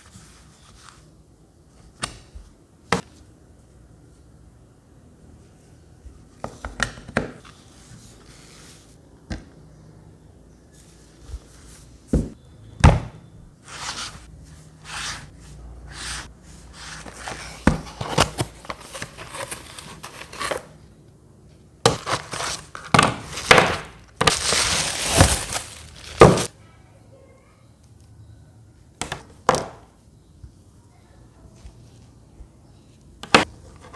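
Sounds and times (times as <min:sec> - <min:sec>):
plastic wrapping crinkling: 0:17.0 - 0:20.6, 0:22.0 - 0:26.5.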